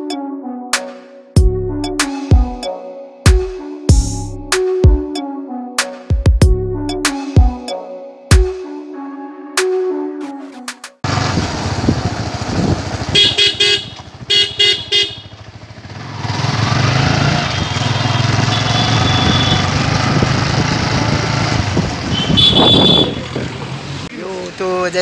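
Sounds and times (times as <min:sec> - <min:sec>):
engine and road noise: 0:11.0 - 0:25.0
vehicle horn beeps: 0:13.2 - 0:15.4, 0:17.4 - 0:19.8, 0:22.0 - 0:23.4.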